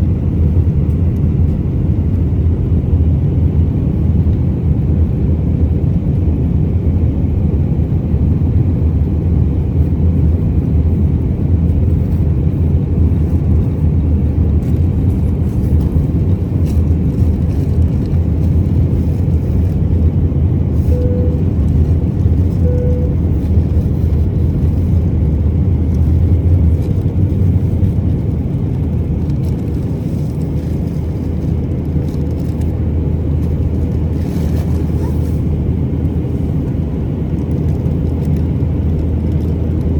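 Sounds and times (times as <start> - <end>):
jet engine and airflow rumble: 0.0 - 39.9
faint short beeps: 20.9 - 21.6, 22.6 - 23.2.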